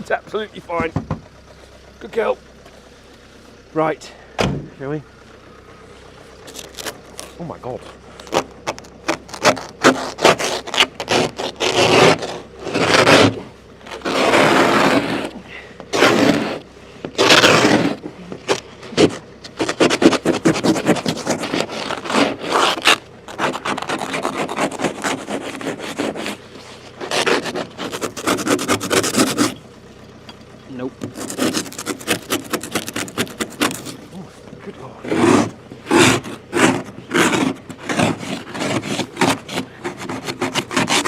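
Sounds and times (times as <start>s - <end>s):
ice scraper scraping windscreen: 6.4s - 29.6s, 31.0s - 41.0s.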